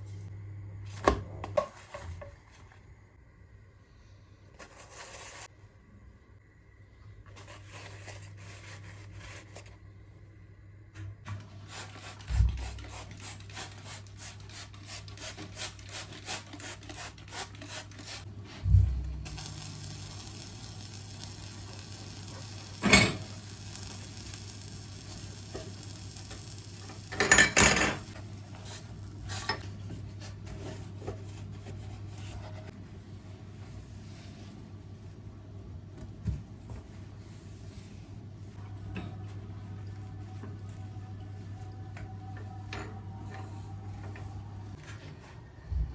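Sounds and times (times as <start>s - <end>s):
steady low hum: 0.0s - 12.9s, 18.2s - 25.2s
kitchenware clinking: 22.7s - 23.4s, 26.9s - 28.2s.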